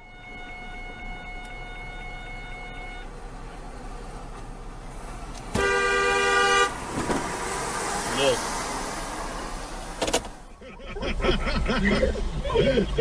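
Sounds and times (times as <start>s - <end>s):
car horn blast: 0.0s - 3.1s, 5.5s - 7.0s
road and engine hum: 0.0s - 13.0s.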